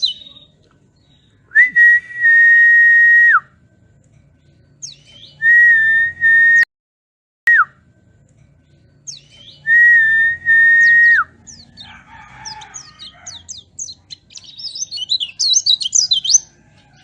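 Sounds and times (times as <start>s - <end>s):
whistled notes: 5.2s - 6.7s, 9.5s - 11.3s.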